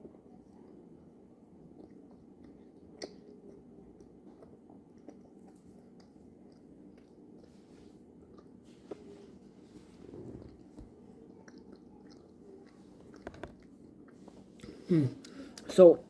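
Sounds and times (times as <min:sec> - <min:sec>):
chewing soft candy: 0:00.0 - 0:15.7
low steady hum: 0:00.0 - 0:16.0.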